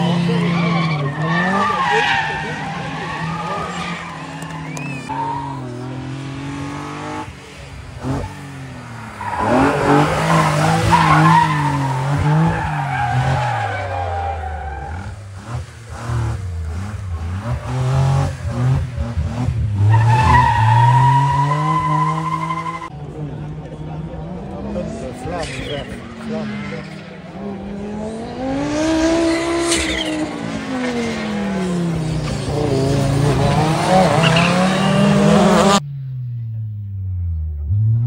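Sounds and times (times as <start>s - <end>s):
tyres squealing and skidding: 0.0s - 6.5s, 8.0s - 16.1s, 17.4s - 23.0s, 25.2s - 27.5s, 28.4s - 35.8s
car engine revving hard: 9.2s - 13.9s, 27.4s - 35.8s.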